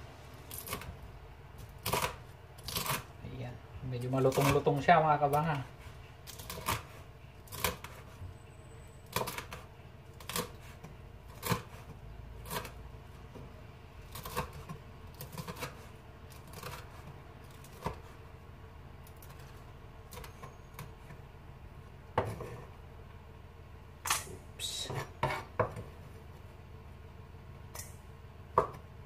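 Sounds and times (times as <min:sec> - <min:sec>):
knife chopping on wooden board: 0:01.7 - 0:03.1, 0:04.2 - 0:08.2, 0:09.1 - 0:18.2, 0:22.1 - 0:22.7, 0:24.9 - 0:26.0, 0:28.5 - 0:28.9.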